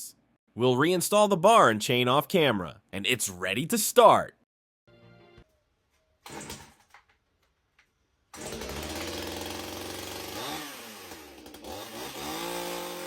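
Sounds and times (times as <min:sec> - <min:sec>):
chainsaw engine running: 0:08.3 - 0:13.0.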